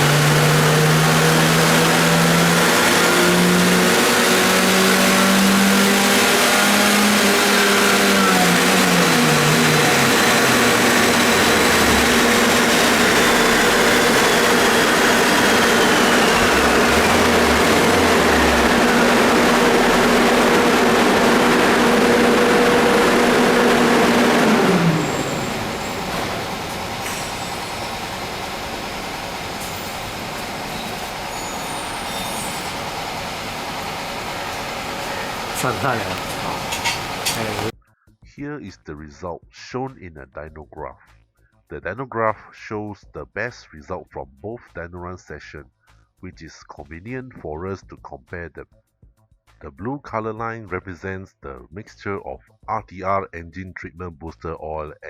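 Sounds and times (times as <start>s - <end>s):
car engine revving: 0.0s - 37.7s
dynamometer rollers whirring: 0.0s - 37.7s.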